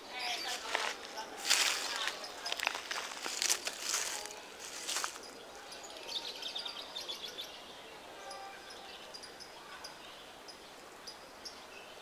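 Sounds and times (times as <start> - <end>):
small birds chirping: 0.0 - 8.0
faint outdoor background noise: 0.0 - 12.0.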